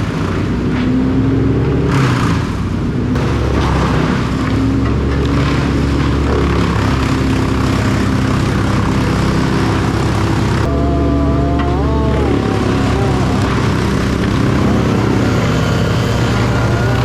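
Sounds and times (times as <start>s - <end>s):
heavy machinery engine drone: 0.0s - 17.0s
high whine: 7.8s - 17.0s.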